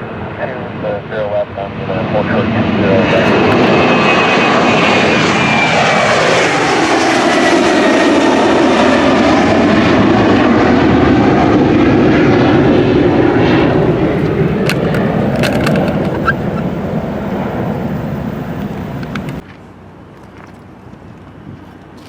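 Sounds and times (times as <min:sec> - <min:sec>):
jet airliner engines whining: 0:00.0 - 0:22.0
sharp clicks: 0:14.2 - 0:16.6, 0:18.6 - 0:19.4.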